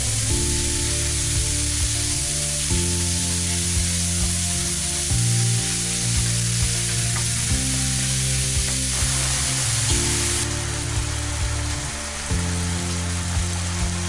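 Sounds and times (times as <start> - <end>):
background music with sustained chords: 0.0 - 14.0
meat sizzling in a frying pan: 0.1 - 14.0.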